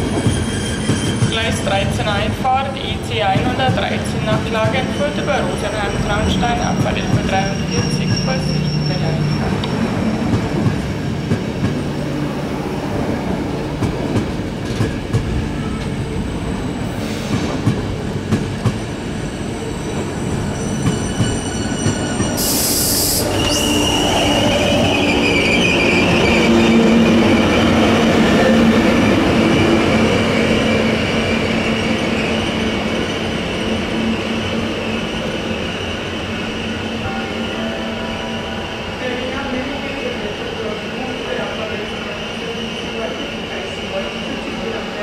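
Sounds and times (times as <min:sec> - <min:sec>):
train wheels squealing: 0:00.0 - 0:02.2, 0:03.4 - 0:11.4, 0:19.5 - 0:45.0
train wheels clicking over track: 0:16.9 - 0:18.9.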